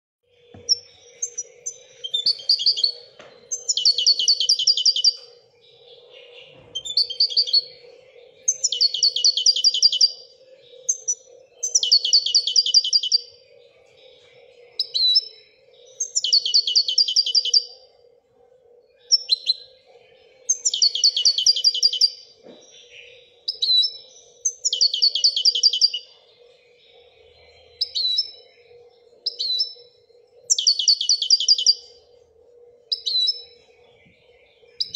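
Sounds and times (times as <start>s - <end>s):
faint low hum: 0.2s - 34.9s
bird call notes: 0.5s - 5.3s
goldfinch trilling: 0.5s - 5.3s, 6.8s - 7.8s, 8.4s - 13.3s, 14.8s - 17.8s, 20.5s - 22.2s, 23.5s - 26.1s, 30.5s - 31.8s.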